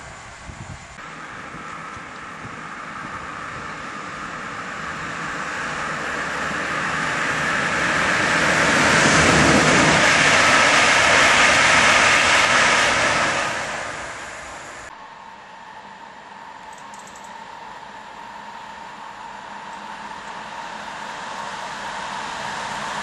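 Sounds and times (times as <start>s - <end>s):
train wheels rushing on rail: 0.0s - 23.0s
faint steady whine: 13.6s - 23.0s.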